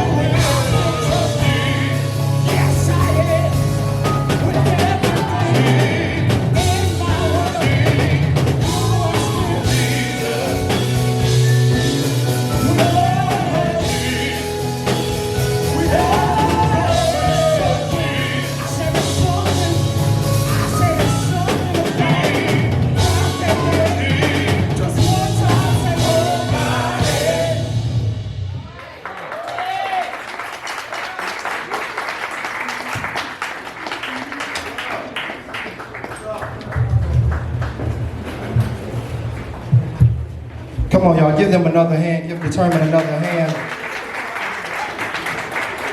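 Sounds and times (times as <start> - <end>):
gospel quartet singing: 0.0 - 28.3
bass guitar: 0.0 - 28.7
drum kit: 0.0 - 28.9.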